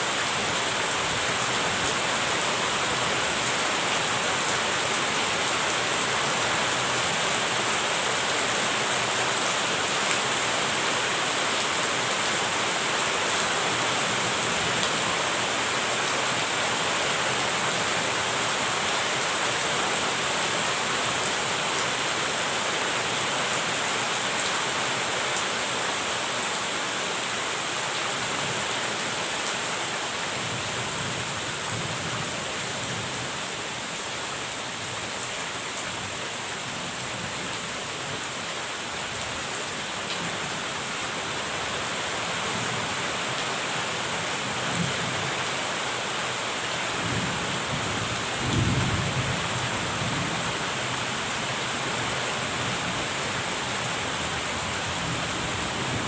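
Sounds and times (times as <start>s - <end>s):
heavy rain: 0.0s - 56.0s
low thunder rumble: 48.4s - 50.2s.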